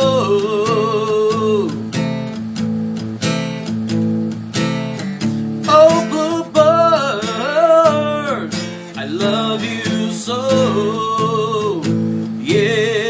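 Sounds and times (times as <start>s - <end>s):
person singing: 0.0s - 1.9s, 5.7s - 13.0s
strummed acoustic guitar: 0.0s - 13.0s.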